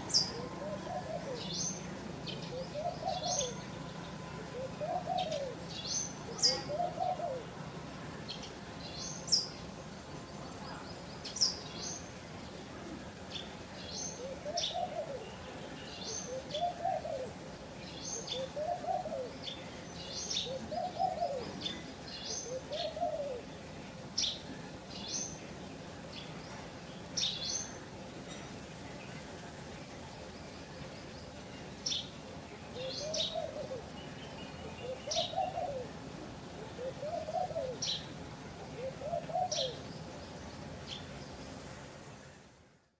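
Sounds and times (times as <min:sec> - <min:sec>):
low cooing bird call: 0:00.0 - 0:03.7, 0:04.5 - 0:07.6, 0:14.1 - 0:17.4, 0:18.1 - 0:23.5, 0:32.7 - 0:36.0, 0:36.6 - 0:38.1, 0:38.7 - 0:39.9.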